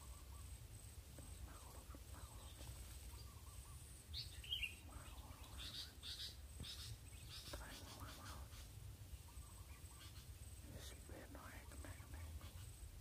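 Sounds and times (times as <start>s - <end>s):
high bird chirps: 3.1s - 8.6s.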